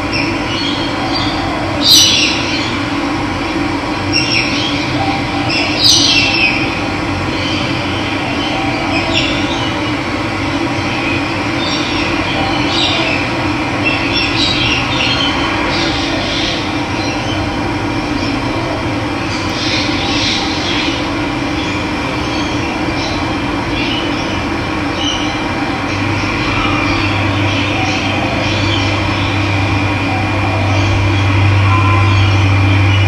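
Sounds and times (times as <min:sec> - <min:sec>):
birds chirping: 0:00.1 - 0:02.8, 0:04.1 - 0:06.7, 0:19.2 - 0:33.0.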